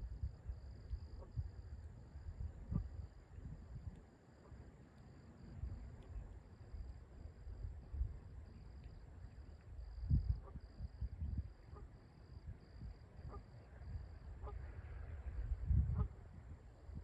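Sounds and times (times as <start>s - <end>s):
wind rumbling on microphone: 0.0s - 17.0s
geese calling faintly: 10.4s - 10.8s, 11.6s - 12.1s, 13.2s - 16.5s.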